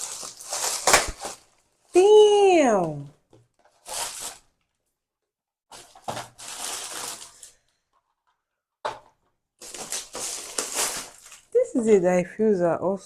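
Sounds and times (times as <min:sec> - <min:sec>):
packaging crinkling: 0:00.0 - 0:02.0, 0:03.5 - 0:04.8, 0:05.7 - 0:07.7, 0:09.1 - 0:11.8.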